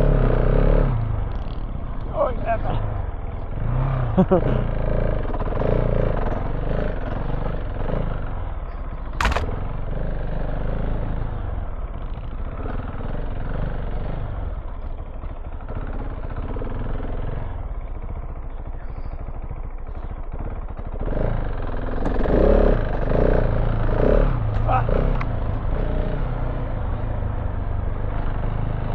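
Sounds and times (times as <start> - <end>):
motorcycle engine revving: 9.2 - 9.5, 20.9 - 28.8
sharp knock: 9.2 - 9.5.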